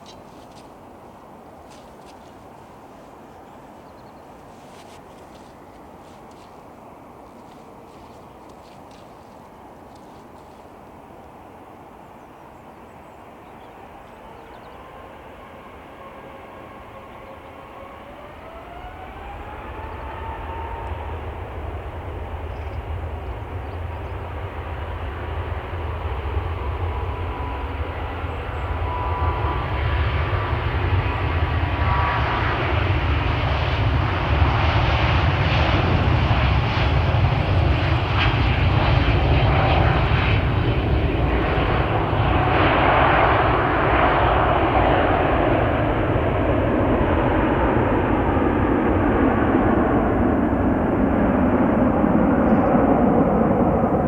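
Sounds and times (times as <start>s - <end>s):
jet engines rumbling: 0.0s - 54.0s
thin engine whine: 13.7s - 54.0s.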